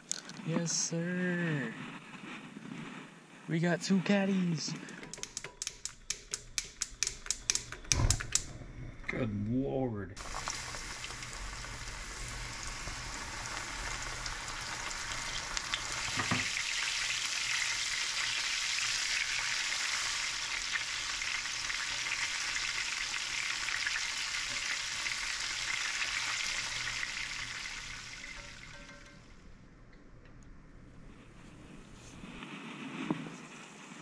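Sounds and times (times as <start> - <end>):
fish frying in hot oil: 10.2 - 29.2.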